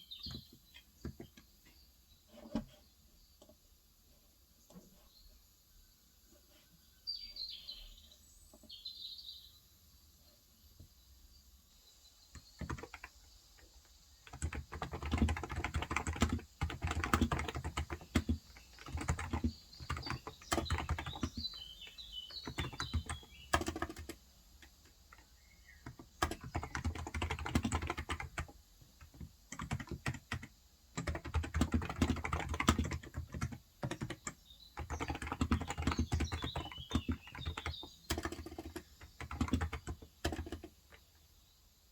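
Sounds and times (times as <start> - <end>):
small bird chirping: 0.0 - 3.6, 4.6 - 41.7
keyboard typing clicks: 12.4 - 13.1, 14.3 - 21.4, 22.4 - 24.2, 25.8 - 41.0.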